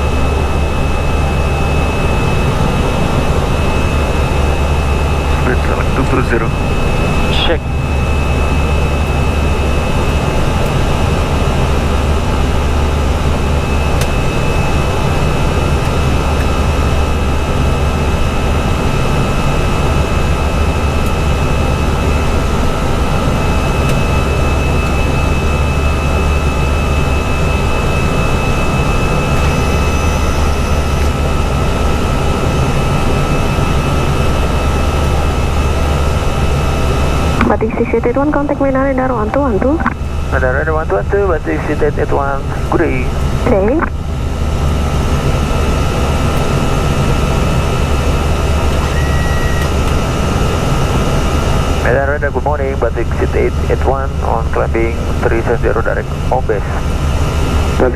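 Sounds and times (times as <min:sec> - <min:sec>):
jet engine hum: 0:00.0 - 0:57.9
faint steady high tone: 0:48.8 - 0:49.7.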